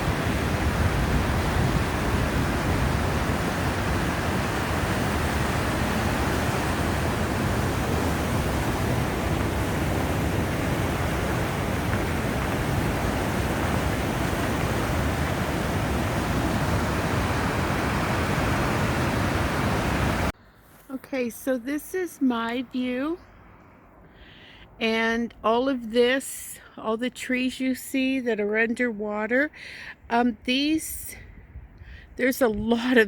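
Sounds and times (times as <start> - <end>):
floodwater rushing in river: 0.0 - 20.4.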